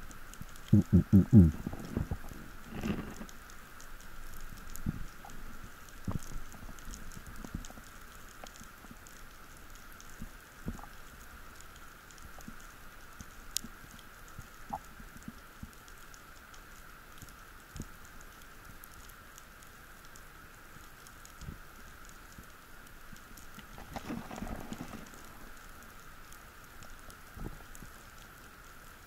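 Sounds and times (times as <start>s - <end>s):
background hiss: 0.0s - 29.0s
underwater crackling clicks: 0.0s - 29.0s.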